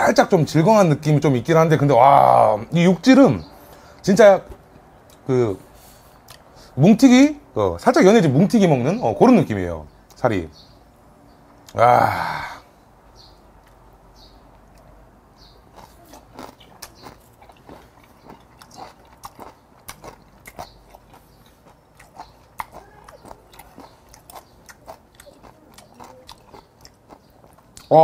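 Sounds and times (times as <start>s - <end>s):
person chewing with wet smacks: 5.0s - 5.3s, 6.2s - 6.5s, 13.5s - 28.0s.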